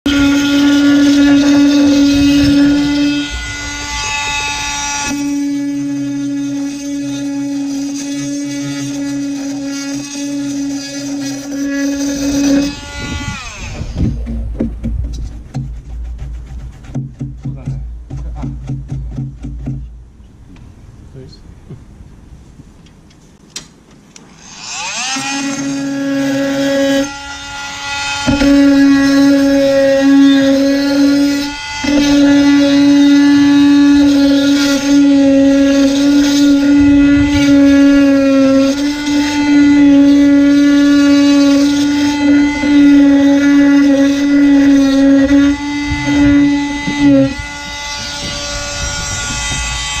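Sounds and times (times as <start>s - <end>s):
electric power tool whining: 0.0s - 16.0s, 23.6s - 50.0s
low rumbling noise: 12.0s - 23.4s.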